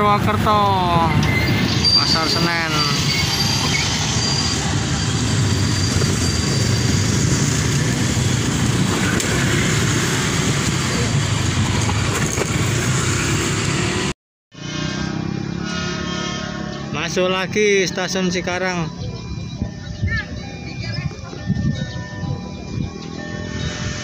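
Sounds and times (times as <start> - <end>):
train coaches rumbling past: 0.0 - 14.1.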